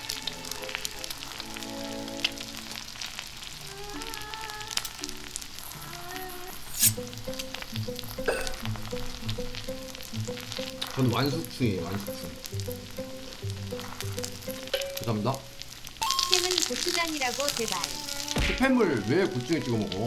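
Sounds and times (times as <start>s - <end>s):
background music: 0.0s - 3.0s, 6.7s - 20.0s
eggs sizzling in a skillet: 0.0s - 20.0s
steady beat: 7.0s - 15.1s.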